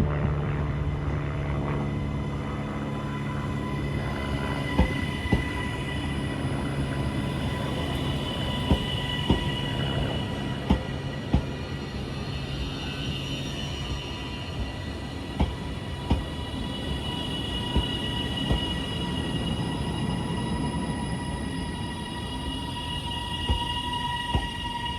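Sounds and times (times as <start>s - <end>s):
train humming on rails: 0.0s - 24.9s
train wheels knocking: 4.7s - 5.8s, 8.0s - 11.8s, 14.6s - 16.5s, 17.6s - 19.0s, 23.4s - 24.7s.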